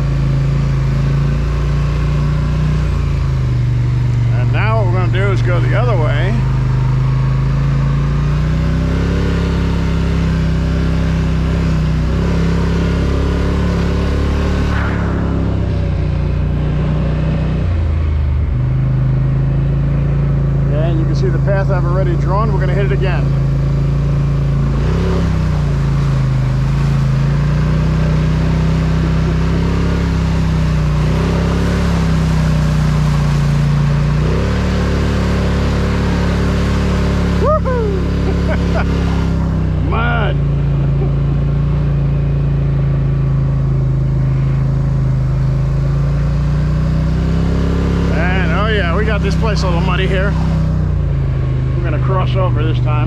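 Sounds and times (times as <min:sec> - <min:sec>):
atv engine revving: 0:00.0 - 0:53.0.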